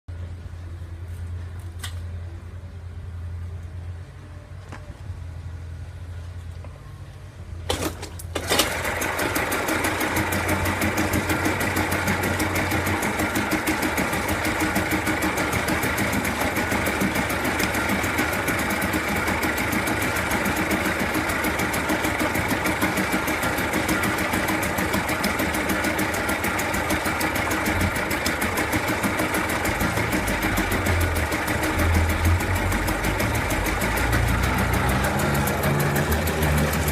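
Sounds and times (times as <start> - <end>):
outboard motor running: 8.4 - 36.9.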